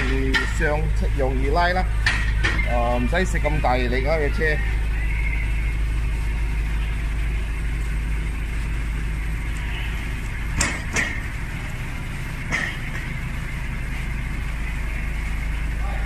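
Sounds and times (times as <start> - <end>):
sharp metallic knocks: 0.0 - 0.9, 2.0 - 2.7, 10.6 - 11.3, 12.5 - 13.3
vehicle engine idling: 0.0 - 16.0.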